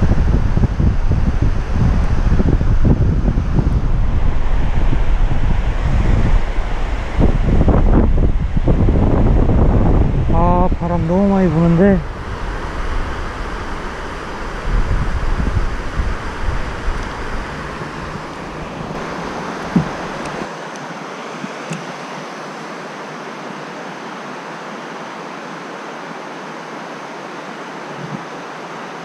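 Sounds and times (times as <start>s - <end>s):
wind buffeting microphone: 0.0s - 20.5s
steady rushing hiss: 0.0s - 29.0s.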